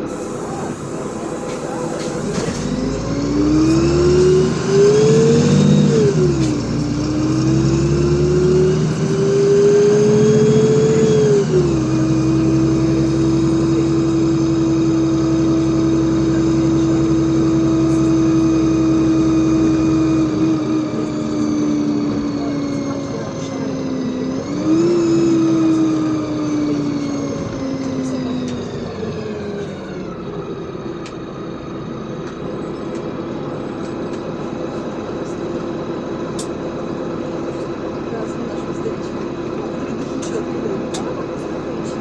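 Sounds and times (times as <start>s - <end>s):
bus engine and transmission whine: 0.0s - 42.0s.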